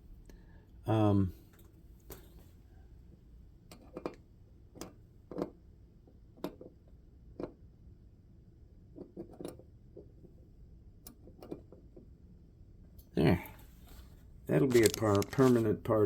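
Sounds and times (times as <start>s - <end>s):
small objects clicking and tapping: 14.6s - 15.6s.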